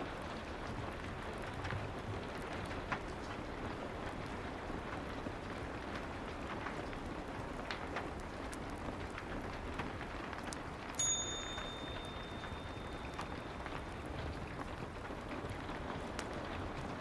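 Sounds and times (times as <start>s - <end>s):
fireplace crackles: 0.0s - 17.0s
soft rain: 0.0s - 17.0s
timer bell ding: 11.0s - 13.7s.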